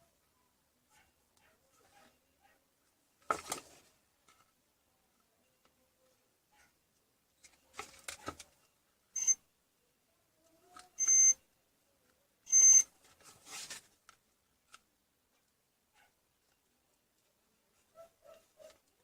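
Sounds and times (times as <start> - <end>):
short high electronic beeps: 9.2 - 9.4, 11.0 - 11.4, 12.5 - 12.8.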